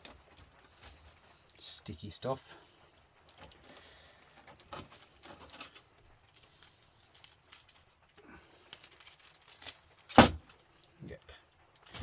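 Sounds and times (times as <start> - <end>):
scrap parts clicking and rustling: 2.6 - 11.0.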